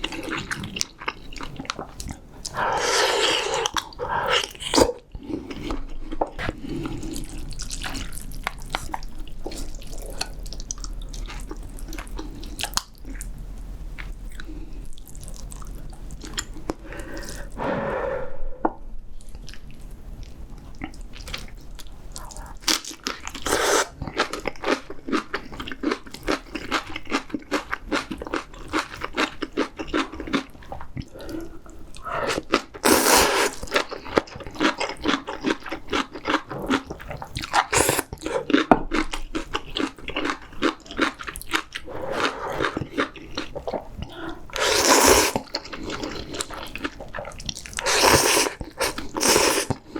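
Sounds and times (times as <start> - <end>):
wet chewing and crunching: 0.0 - 13.4, 14.0 - 17.6, 19.2 - 49.9
slurping noodles: 2.5 - 5.0, 23.4 - 24.0, 32.0 - 33.8, 37.5 - 38.5, 44.1 - 46.6, 47.5 - 49.9.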